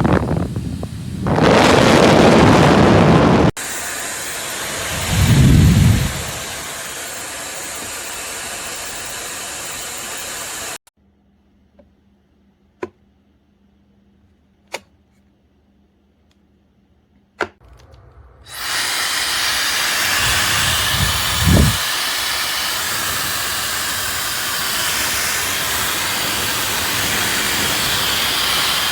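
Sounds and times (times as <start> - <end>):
hair dryer blowing: 0.0 - 10.9, 18.5 - 28.9
low rumble of air: 4.8 - 6.6.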